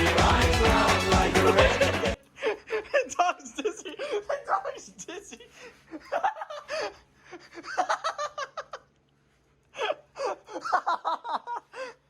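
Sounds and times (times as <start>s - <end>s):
people giggling: 0.9s - 8.9s, 10.2s - 11.9s.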